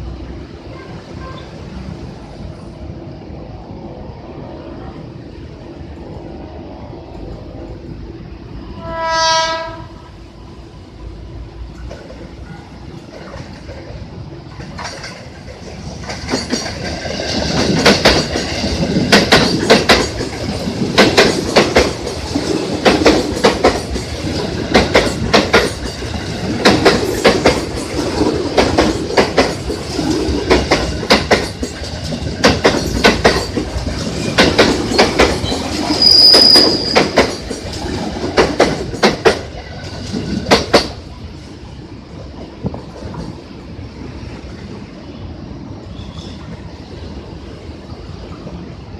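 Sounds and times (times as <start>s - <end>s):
train horn: 8.7s - 10.2s
train wheels clacking over rail joints: 13.0s - 41.1s
wheels squealing: 32.8s - 37.7s.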